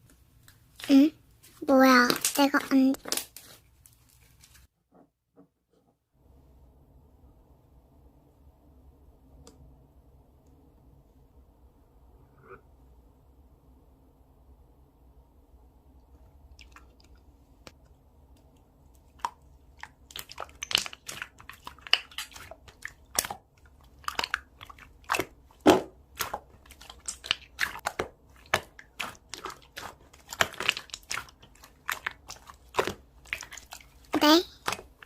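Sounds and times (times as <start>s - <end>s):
slime crackling and popping: 1.9s - 4.4s, 19.0s - 35.0s.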